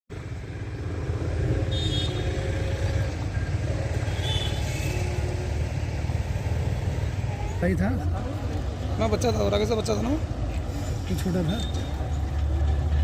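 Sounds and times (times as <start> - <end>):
motor vehicle running: 0.1 - 13.0.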